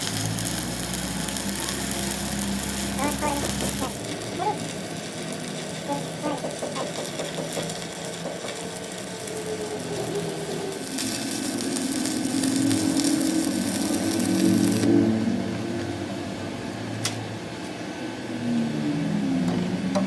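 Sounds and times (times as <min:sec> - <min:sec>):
hiss: 0:00.0 - 0:14.9
machine humming: 0:00.0 - 0:20.0.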